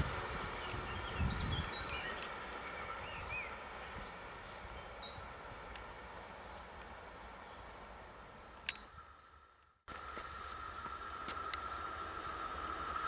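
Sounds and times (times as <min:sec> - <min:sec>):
passenger train rolling: 0:00.0 - 0:06.8
small birds chirping: 0:00.1 - 0:13.0.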